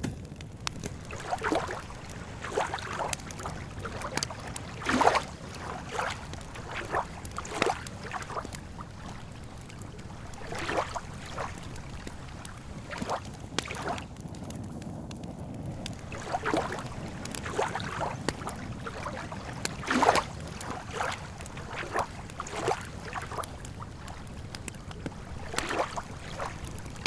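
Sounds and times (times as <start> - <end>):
campfire crackles and pops: 0.0 - 27.0
small waves lapping: 0.6 - 27.0.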